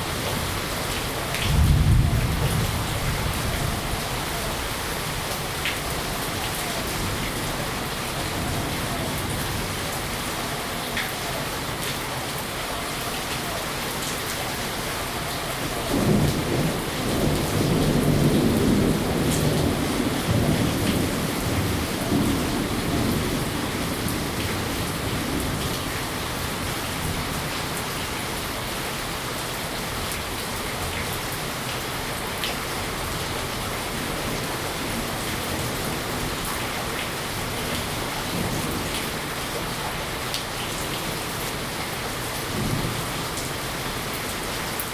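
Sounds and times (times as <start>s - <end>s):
steady rain: 0.0s - 44.9s
thunder rumble: 1.3s - 10.0s, 15.8s - 27.5s.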